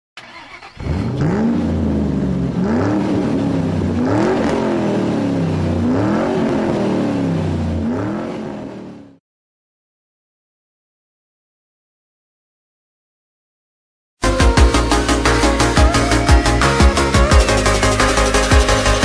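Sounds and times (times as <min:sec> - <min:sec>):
car engine revving: 0:00.2 - 0:09.2, 0:14.8 - 0:19.0.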